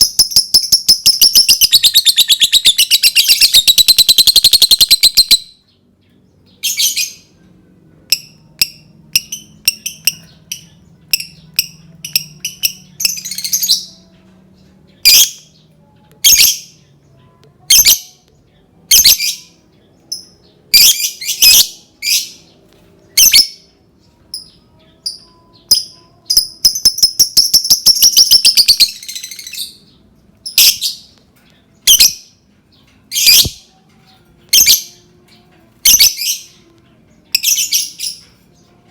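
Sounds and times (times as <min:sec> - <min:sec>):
lovebird chattering rapidly: 0:00.0 - 0:05.4.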